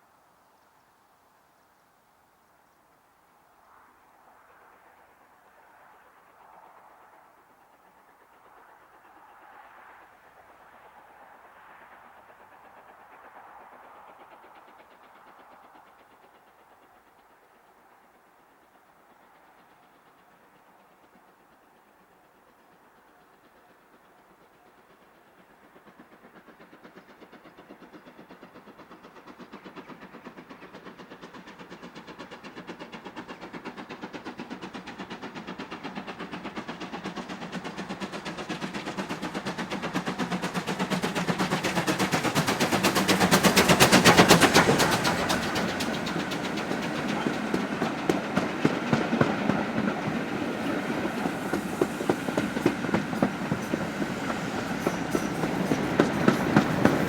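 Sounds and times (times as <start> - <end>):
train wheels clicking over rail joints: 22.0 - 57.0
locomotive exhaust beating: 35.6 - 57.0.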